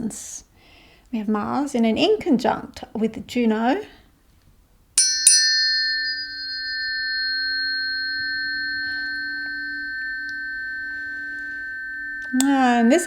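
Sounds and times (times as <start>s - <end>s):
tuning forks ringing: 5.0s - 13.0s.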